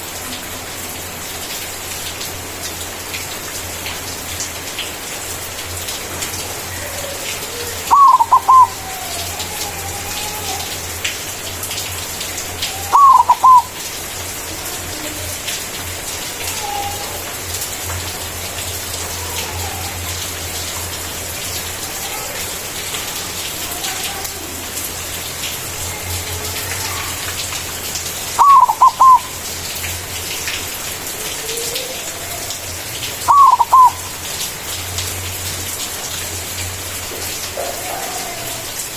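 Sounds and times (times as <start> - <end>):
dove cooing song: 6.8 - 9.4, 12.8 - 13.8, 28.4 - 29.4, 33.2 - 34.1
faint soft bird calls: 7.9 - 8.8, 12.8 - 13.7, 28.4 - 29.3, 33.3 - 34.0.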